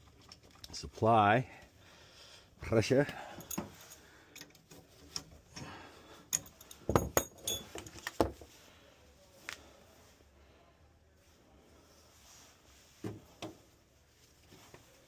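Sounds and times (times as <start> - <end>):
metal tools clicking and knocking: 6.3 - 8.4.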